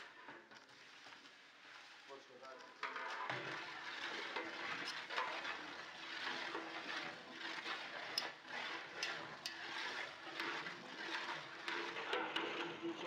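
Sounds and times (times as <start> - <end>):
paste sizzling in hot oil: 3.6 - 12.6.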